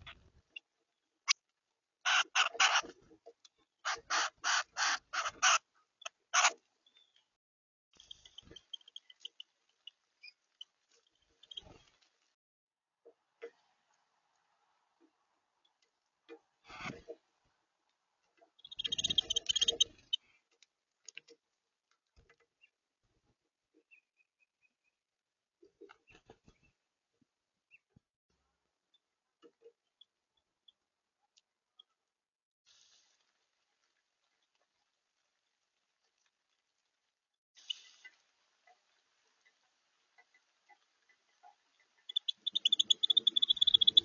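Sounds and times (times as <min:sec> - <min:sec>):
harsh raspy bird calls: 0:02.0 - 0:02.8, 0:03.8 - 0:05.6, 0:06.3 - 0:06.6, 0:42.0 - 0:44.0
harsh bird calls: 0:42.1 - 0:44.0.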